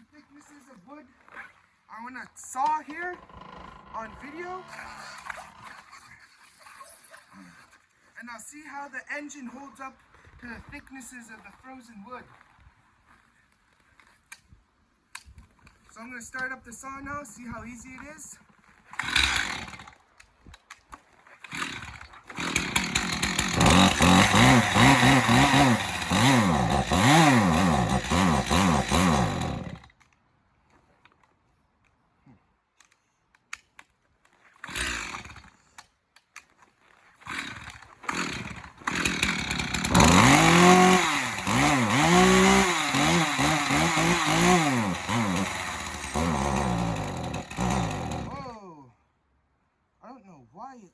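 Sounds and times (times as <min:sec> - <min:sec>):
chainsaw pull-start: 0:02.6 - 0:07.5, 0:18.5 - 0:20.1, 0:21.0 - 0:30.1, 0:34.3 - 0:48.5
chainsaw engine revving: 0:03.1 - 0:05.9, 0:18.9 - 0:20.0, 0:21.4 - 0:29.9, 0:34.6 - 0:35.6, 0:37.2 - 0:48.5.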